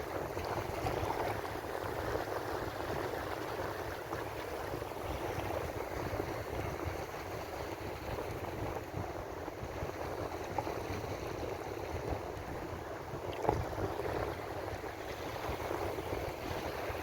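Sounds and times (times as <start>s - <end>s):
ocean waves washing on shore: 0.0s - 17.0s.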